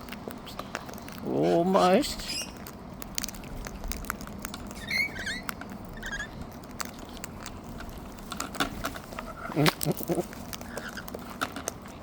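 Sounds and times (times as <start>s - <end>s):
bird chirping softly: 0.0s - 2.8s, 3.7s - 7.7s
beak and claws clicking: 0.0s - 12.0s.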